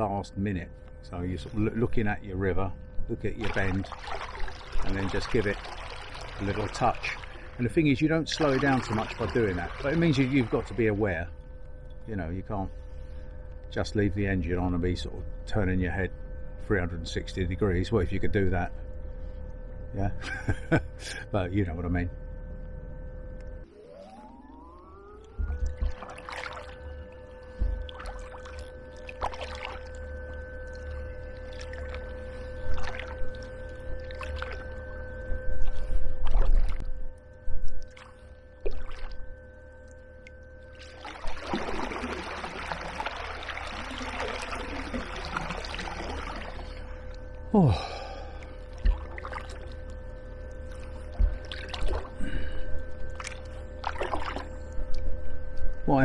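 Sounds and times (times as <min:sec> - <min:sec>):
faint steady hum: 0:00.0 - 0:56.0
water splashing against kayak: 0:03.4 - 0:07.6, 0:08.3 - 0:11.0, 0:25.5 - 0:26.9, 0:27.5 - 0:30.0, 0:40.8 - 0:47.1, 0:48.6 - 0:49.8, 0:53.1 - 0:54.6.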